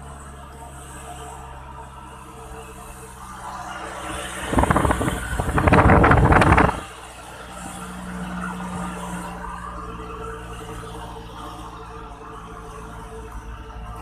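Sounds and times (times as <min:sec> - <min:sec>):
vehicle humming: 0:00.0 - 0:14.0
rough rapidly pulsing noise: 0:04.1 - 0:07.0.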